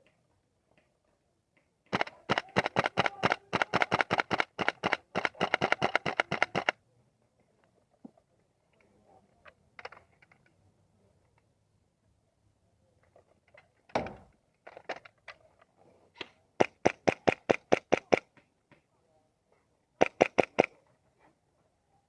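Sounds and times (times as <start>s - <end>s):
airsoft gun firing: 1.9s - 6.7s, 16.6s - 18.3s, 20.0s - 20.7s.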